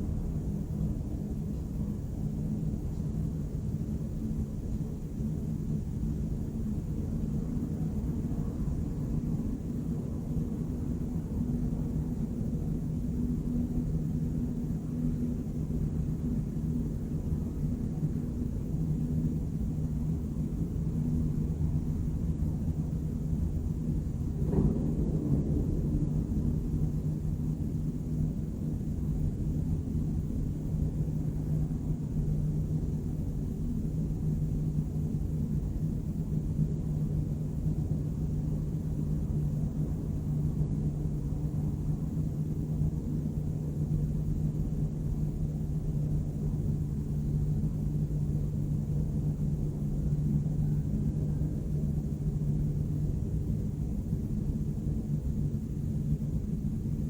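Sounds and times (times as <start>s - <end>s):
constant low hum: 0.0s - 57.0s
distant urban rumble: 21.0s - 29.2s.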